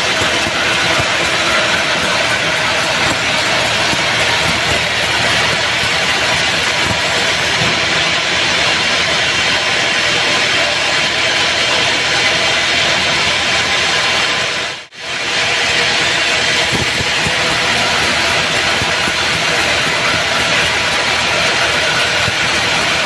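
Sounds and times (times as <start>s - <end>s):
bandsaw running: 0.0s - 23.0s.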